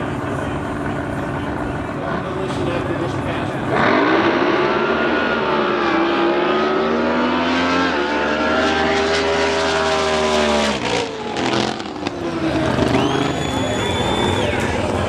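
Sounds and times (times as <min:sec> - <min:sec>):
boat engine running loudly: 0:00.0 - 0:06.6.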